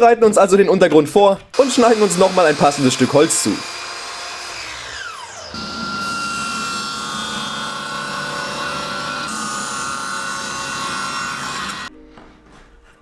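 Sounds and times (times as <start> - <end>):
power saw cutting wood: 1.5 - 11.9.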